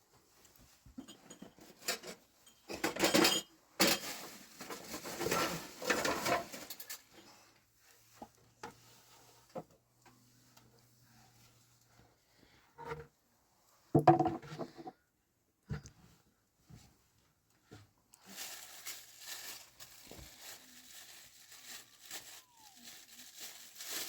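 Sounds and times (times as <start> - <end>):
dishes and pots clattering: 1.0 - 4.2.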